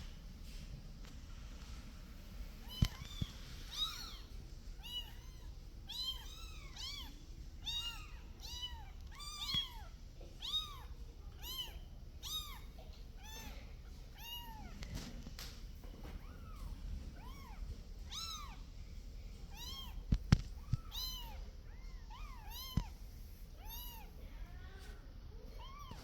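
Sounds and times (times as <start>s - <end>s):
kitten meowing: 2.6s - 13.6s, 14.2s - 14.7s, 16.2s - 18.6s, 19.5s - 23.0s, 23.6s - 24.1s.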